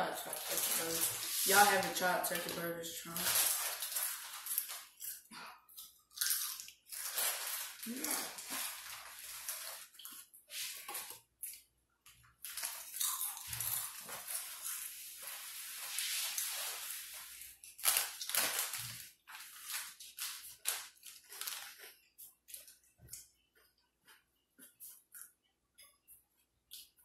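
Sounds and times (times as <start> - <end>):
crunchy chewing: 3.4 - 11.7, 12.4 - 14.8.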